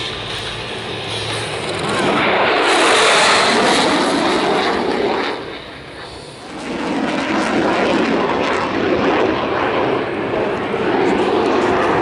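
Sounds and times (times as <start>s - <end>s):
airplane engine: 0.0s - 12.0s.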